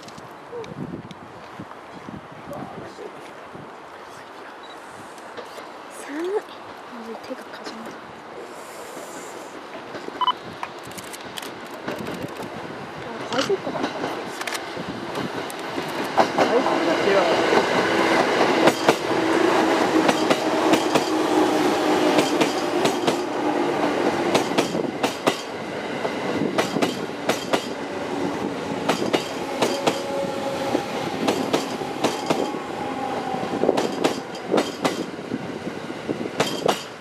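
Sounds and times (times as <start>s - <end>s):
train running hum: 6.5s - 37.0s
train wheels clattering: 13.2s - 27.9s, 28.7s - 32.6s, 33.2s - 35.1s, 36.4s - 37.0s.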